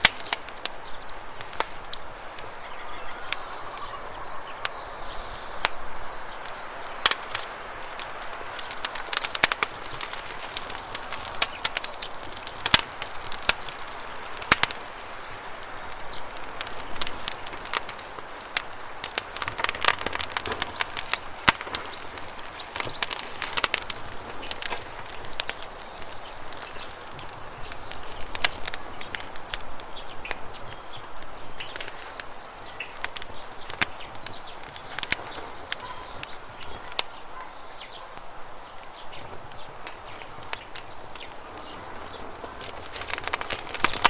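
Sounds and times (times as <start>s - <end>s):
campfire crackling and popping: 0.0s - 44.0s
faint high bird chirps: 1.8s - 7.1s, 29.6s - 38.3s.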